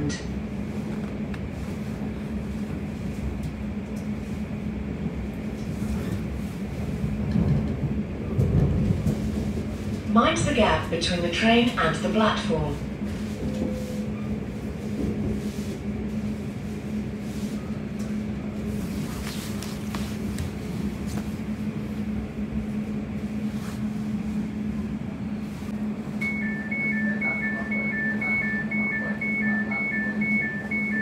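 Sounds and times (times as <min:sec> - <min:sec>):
electric train hum and rumble: 0:00.0 - 0:31.0
two-tone door warning beeps: 0:13.4 - 0:14.3, 0:26.2 - 0:31.0.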